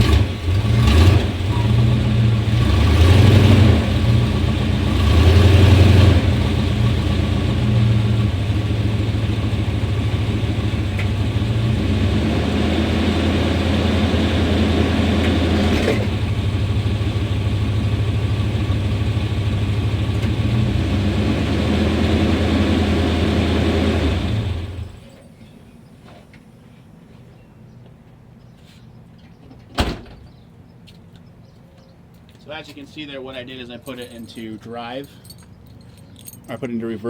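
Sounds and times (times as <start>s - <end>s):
engine idling roughly: 13.3s - 20.7s.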